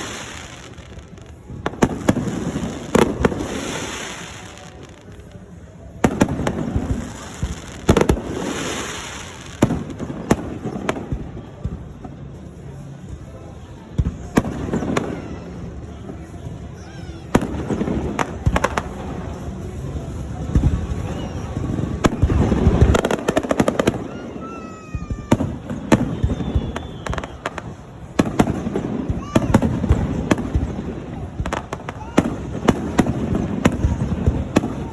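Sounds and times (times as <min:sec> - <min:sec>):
fireworks bangs: 0:00.0 - 0:34.9
hissing crackle of fireworks: 0:00.0 - 0:34.9
falling whistle-like tone: 0:26.1 - 0:27.4.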